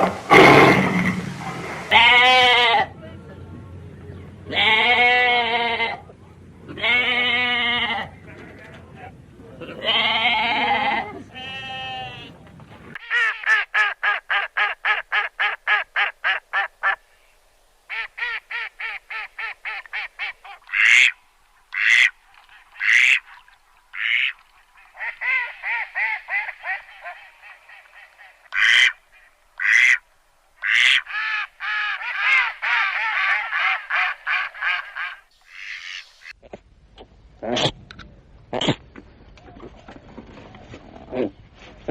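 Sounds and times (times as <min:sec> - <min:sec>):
ducks quacking: 0:17.9 - 0:30.0, 0:30.6 - 0:36.6.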